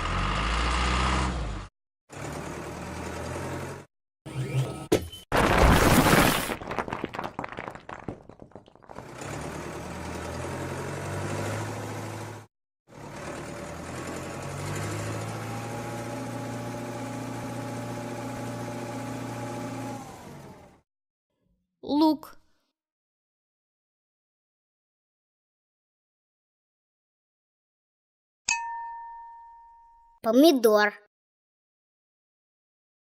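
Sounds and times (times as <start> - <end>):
loud crash with clatter: 5.3 - 9.5
cartoon vehicle engine running: 8.9 - 20.8.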